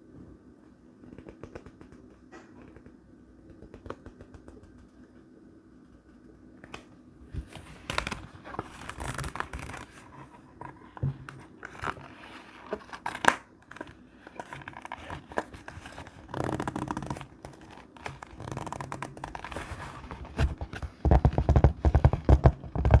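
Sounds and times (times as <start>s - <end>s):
paper rustling and tearing: 7.4s - 10.4s.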